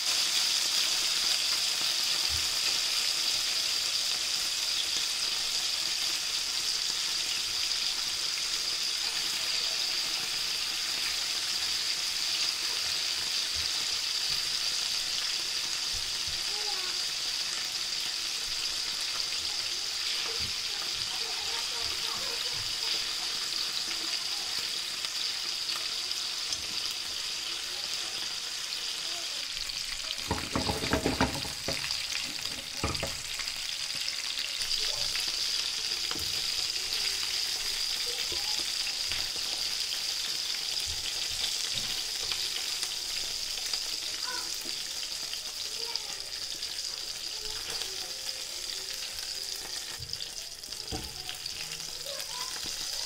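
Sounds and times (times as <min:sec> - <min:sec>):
chicken frying in oil: 0:00.0 - 0:53.0
tongs knocking: 0:30.2 - 0:33.3.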